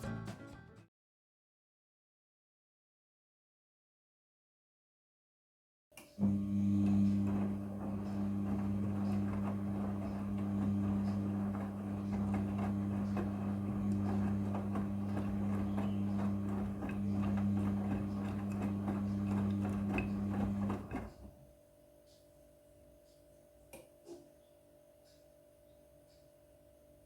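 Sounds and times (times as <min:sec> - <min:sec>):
washing machine humming: 0:06.2 - 0:21.5.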